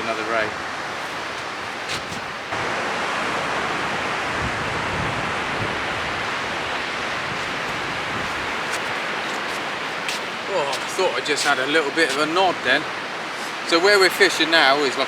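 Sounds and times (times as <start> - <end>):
wind buffeting microphone: 0.0 - 2.6, 4.0 - 12.6
strong wind rushing: 0.4 - 11.1.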